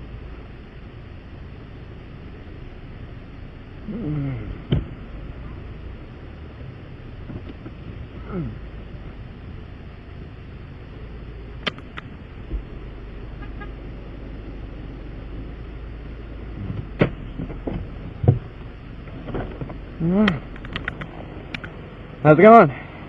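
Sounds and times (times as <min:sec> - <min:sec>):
low vehicle rumble: 0:00.0 - 0:23.0
sharp clicks: 0:11.6 - 0:12.2, 0:20.2 - 0:21.8.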